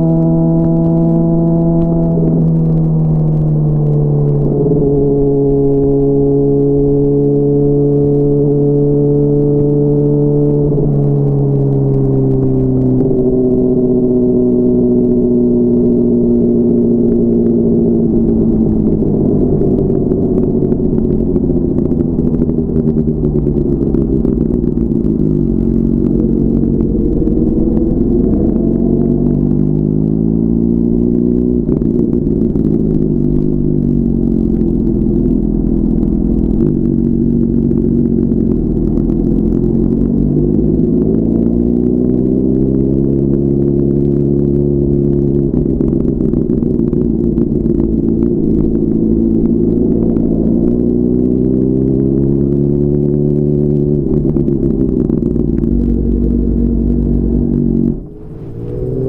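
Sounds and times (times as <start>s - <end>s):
motorcycle engine running: 0.0s - 59.0s
wind rush: 17.6s - 30.4s, 53.9s - 59.0s.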